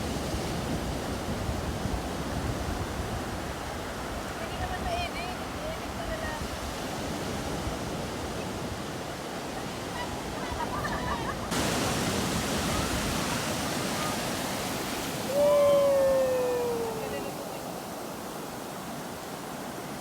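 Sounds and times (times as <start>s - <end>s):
waves washing on a beach: 0.0s - 20.0s
person giving a long call: 15.3s - 17.5s
faint voices: 15.3s - 17.8s.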